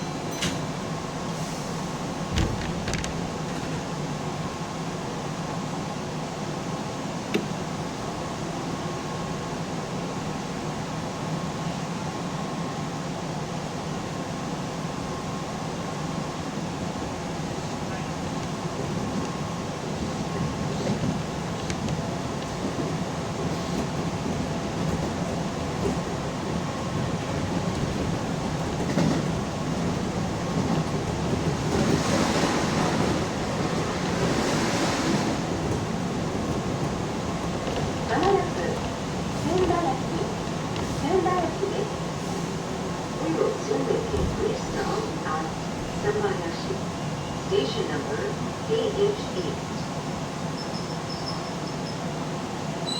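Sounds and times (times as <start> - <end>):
electric train interior hum: 0.0 - 52.9
train hiss: 0.3 - 2.3, 38.2 - 52.2.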